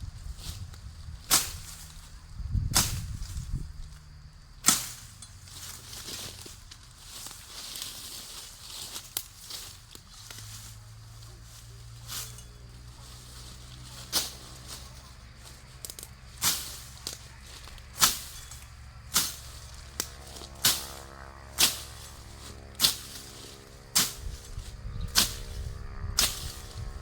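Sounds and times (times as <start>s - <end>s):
low steady hum: 9.8s - 27.0s.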